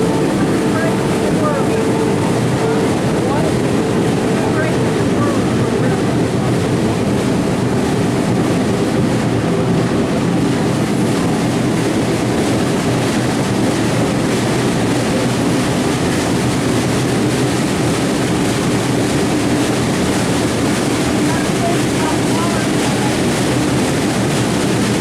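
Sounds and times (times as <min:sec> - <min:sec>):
train running: 0:00.0 - 0:25.0.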